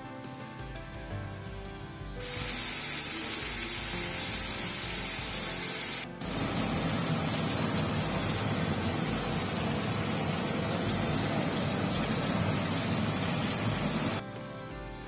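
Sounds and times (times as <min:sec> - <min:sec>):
chicken sizzling in oil: 0:02.2 - 0:14.2.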